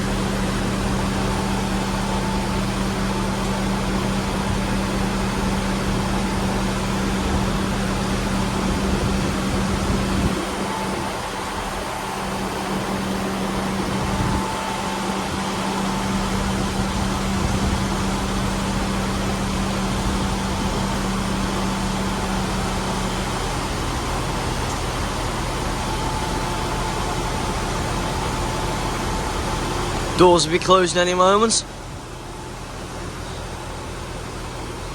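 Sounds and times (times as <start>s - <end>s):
diesel train engine hum: 0.0s - 34.9s.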